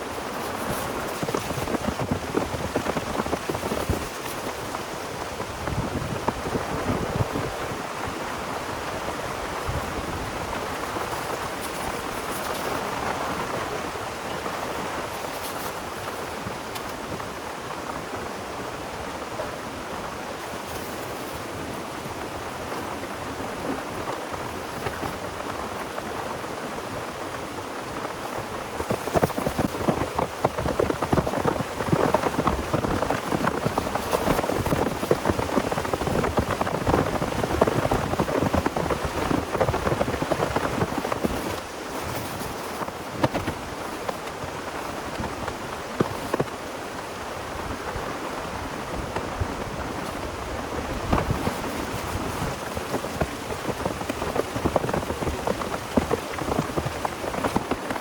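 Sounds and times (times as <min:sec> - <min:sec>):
heavy rain falling: 0:00.0 - 0:58.0
raindrops striking a close surface: 0:28.0 - 0:46.5, 0:48.9 - 0:58.0.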